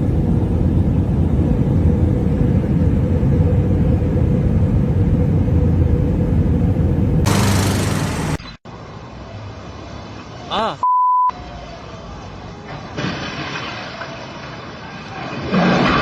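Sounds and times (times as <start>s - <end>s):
heavy engine rumbling: 0.0s - 9.2s
loud hiss: 7.3s - 8.6s.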